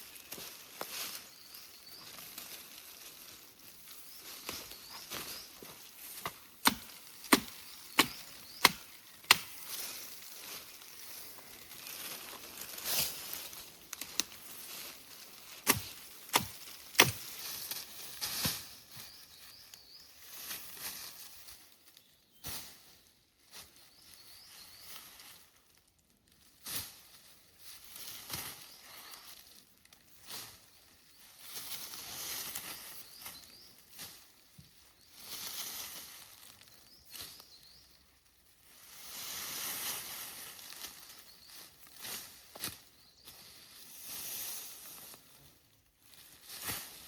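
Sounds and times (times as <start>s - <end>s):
sharp chopping knocks: 6.6s - 9.6s, 15.7s - 17.2s.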